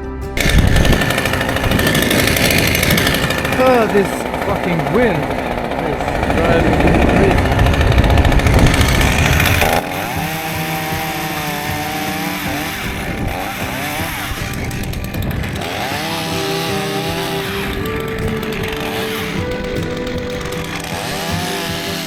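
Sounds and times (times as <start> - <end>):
background music: 0.0 - 22.0
chainsaw running and cutting: 0.4 - 22.0
wind buffeting microphone: 0.4 - 22.0.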